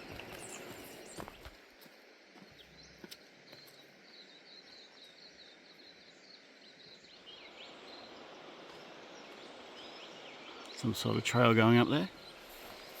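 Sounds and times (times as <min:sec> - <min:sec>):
bird chirping: 0:00.0 - 0:01.5, 0:02.4 - 0:13.0
distant river water: 0:05.4 - 0:13.0.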